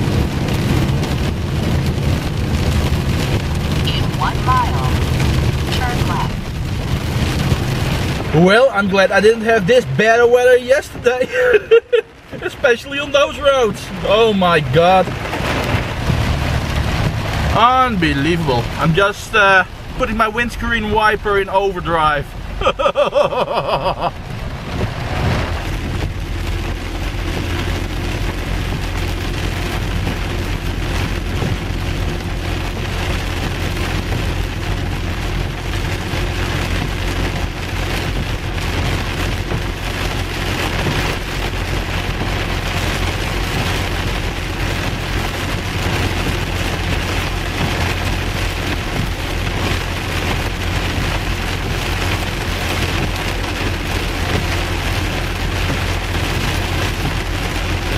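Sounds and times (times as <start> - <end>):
heavy rain on a car: 0.0 - 57.9
engine and tyre drone: 12.2 - 57.9.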